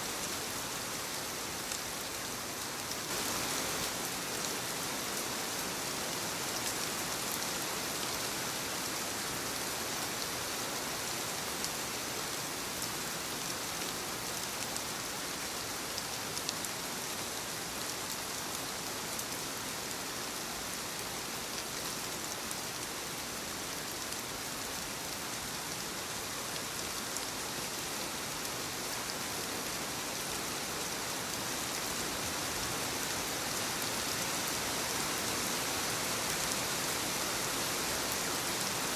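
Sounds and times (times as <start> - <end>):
light rain pattering on leaves: 0.0 - 38.9.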